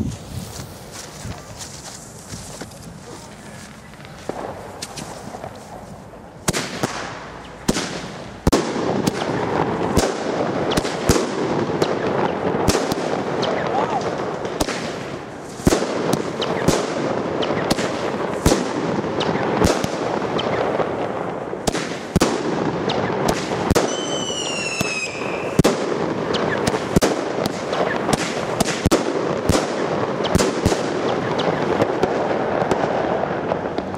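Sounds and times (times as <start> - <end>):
firework bangs: 0.0 - 33.9
fireworks crackling: 0.0 - 33.9
falling firework whistle: 23.8 - 25.6.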